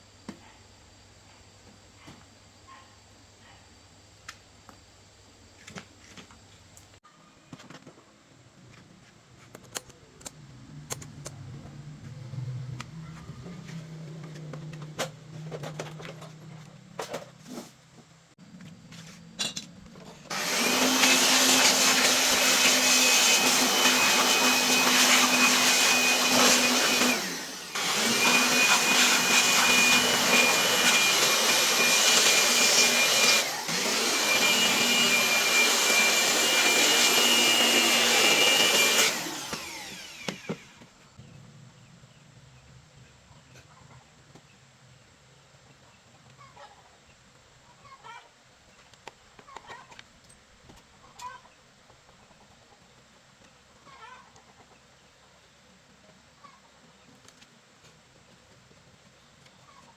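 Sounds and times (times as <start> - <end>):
small electric motor whirring: 20.3 - 40.8.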